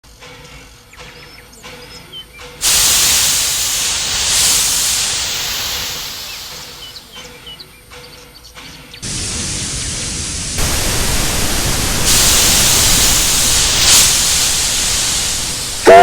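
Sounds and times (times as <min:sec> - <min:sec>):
steam locomotive hissing: 0:02.6 - 0:07.7, 0:09.0 - 0:16.0
birds chirping: 0:05.0 - 0:09.1.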